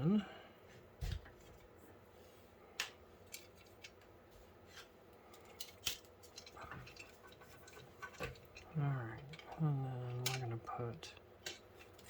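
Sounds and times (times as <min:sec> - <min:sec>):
small parts clicking and tapping: 0:02.8 - 0:12.0.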